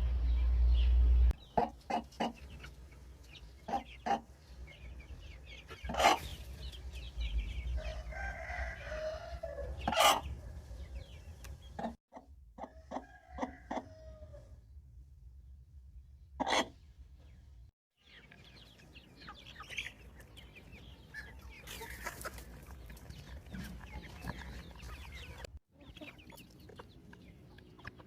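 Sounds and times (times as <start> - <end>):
low rumble: 0.0 - 1.4
chickens clucking: 0.3 - 14.6, 16.4 - 17.4, 18.0 - 28.0
rooster crowing: 7.8 - 10.1, 12.7 - 14.5.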